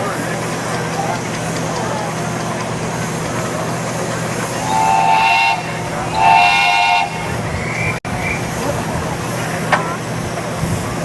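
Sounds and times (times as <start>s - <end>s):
locomotive whistle blasts: 4.5s - 8.5s.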